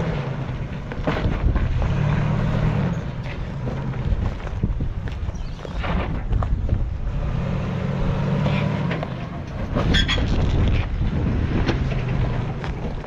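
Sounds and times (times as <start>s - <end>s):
truck engine running at low revs: 0.0s - 13.0s
wind buffeting microphone: 0.6s - 8.3s, 9.5s - 13.0s.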